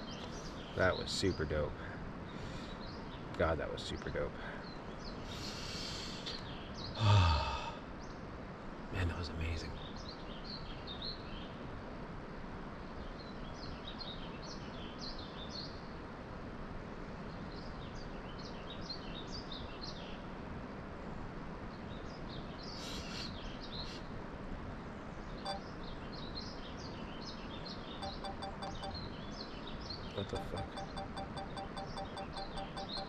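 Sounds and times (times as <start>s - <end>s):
small birds chirping: 0.0s - 11.6s, 21.6s - 24.2s, 24.8s - 33.0s
steady outdoor hiss: 0.0s - 33.0s.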